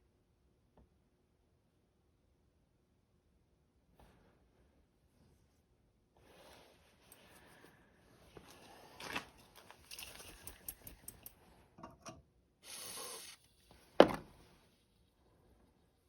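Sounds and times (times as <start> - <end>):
sharp knock of object set down: 14.0 - 14.3.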